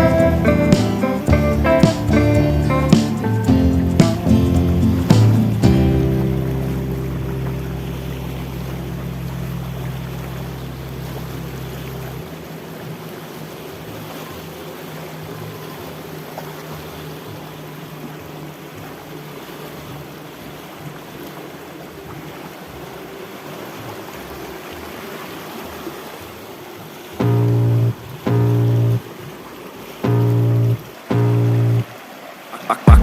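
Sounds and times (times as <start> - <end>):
loud blaring tones: 0.0 - 5.2, 32.6 - 33.0
river flowing: 0.0 - 33.0.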